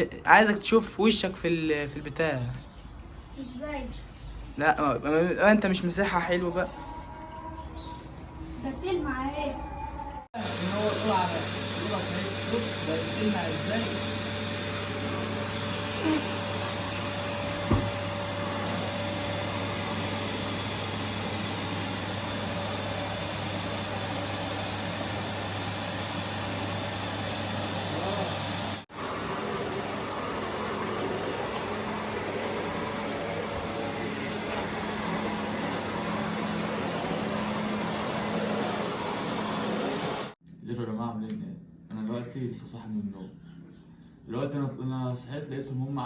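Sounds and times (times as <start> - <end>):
vacuum cleaner running: 10.3 - 40.4.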